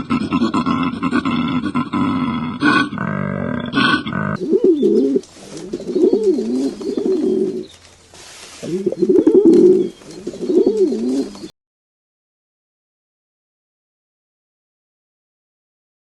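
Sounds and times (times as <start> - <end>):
low warbling animal calls: 0.0 - 7.8, 8.6 - 11.5.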